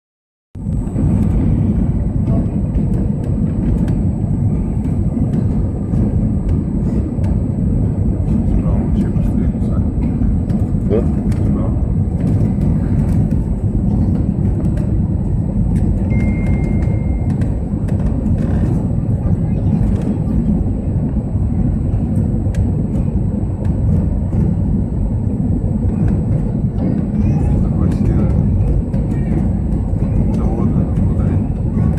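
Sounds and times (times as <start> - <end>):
aircraft cabin engine drone: 0.6 - 31.9.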